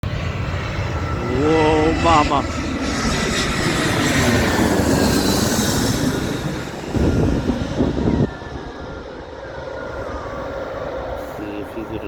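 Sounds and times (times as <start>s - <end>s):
airliner engine rush: 0.0s - 12.0s
jet engine high whine: 0.0s - 12.0s.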